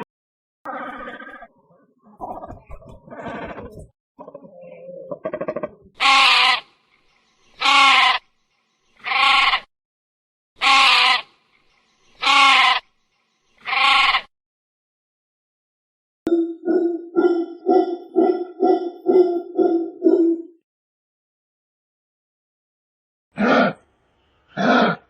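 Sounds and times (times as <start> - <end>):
sheep bleating: 6.0 - 6.6, 7.6 - 8.2, 9.0 - 9.7, 10.6 - 11.3, 12.2 - 12.8, 13.6 - 14.3.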